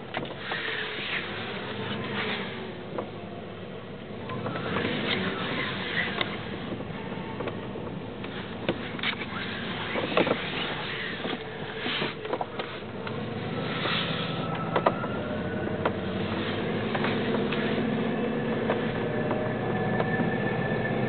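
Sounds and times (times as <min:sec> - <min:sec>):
car engine humming: 0:00.0 - 0:21.0
engine clicks and knocks: 0:06.1 - 0:13.2, 0:13.8 - 0:20.4.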